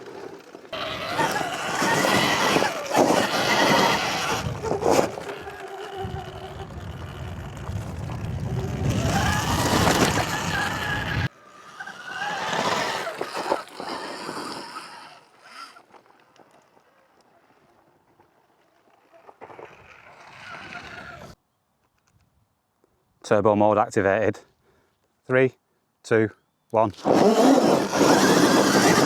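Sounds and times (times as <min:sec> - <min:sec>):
electric motor whining: 0:00.0 - 0:16.1, 0:27.0 - 0:29.0
wind on microphone: 0:01.0 - 0:11.3.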